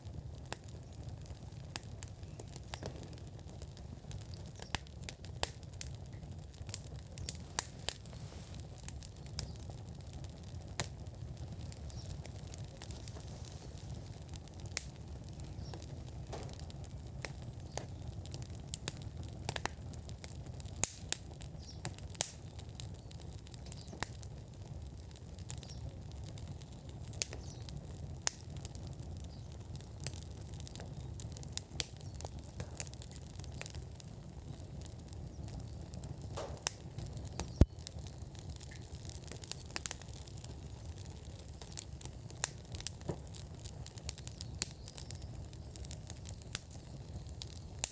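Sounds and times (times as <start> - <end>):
low fire rumble: 0.0 - 47.9
wood fire crackling and popping: 0.0 - 47.9.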